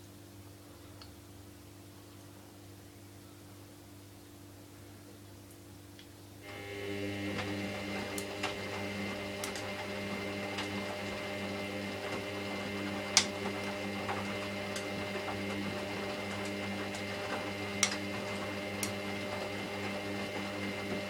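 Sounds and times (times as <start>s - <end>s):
washing machine motor whine: 6.4s - 21.0s.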